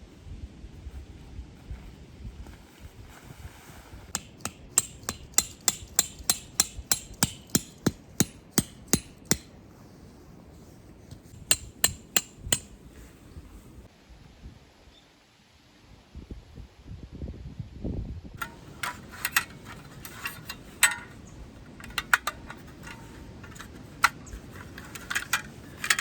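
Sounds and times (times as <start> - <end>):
hammer strikes ringing: 4.2 - 9.5, 11.4 - 12.8.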